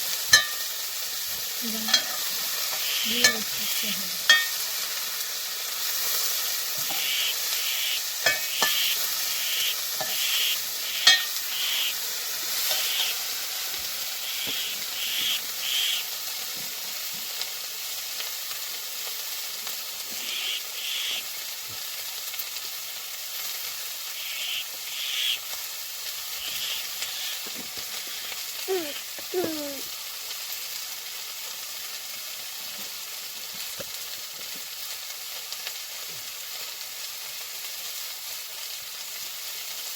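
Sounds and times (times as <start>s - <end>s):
food sizzling in a pan: 0.0s - 39.9s
falling pitched call: 2.7s - 4.1s, 6.9s - 12.0s, 12.7s - 13.2s, 14.2s - 16.1s, 20.1s - 21.3s, 24.1s - 25.4s, 26.4s - 29.8s
utensil clicks against pan: 8.2s - 9.0s, 11.0s - 11.4s.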